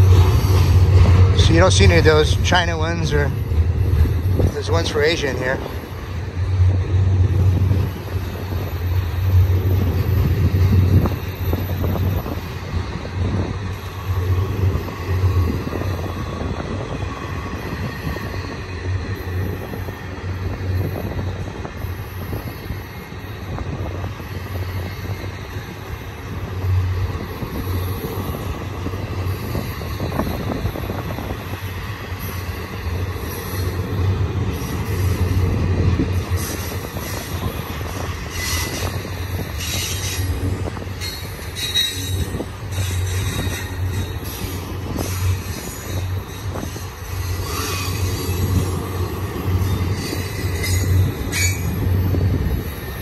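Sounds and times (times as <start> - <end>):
freight train wheels rumbling: 0.0 - 53.0
faint wheel squeal: 49.7 - 51.8.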